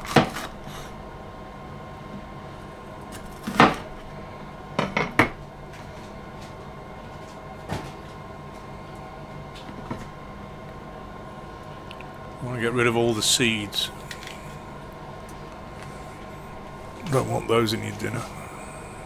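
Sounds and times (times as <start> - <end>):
steady low hum: 8.2 - 19.0.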